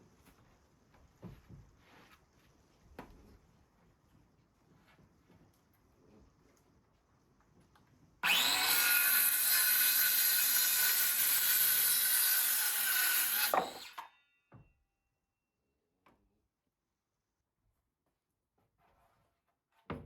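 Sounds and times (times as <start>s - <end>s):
power saw cutting wood: 8.2s - 14.1s.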